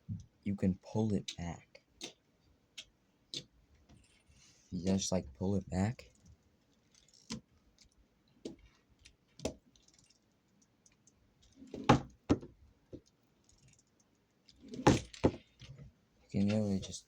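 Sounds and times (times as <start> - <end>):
loud plastic knocks: 11.8 - 12.6, 14.8 - 15.5.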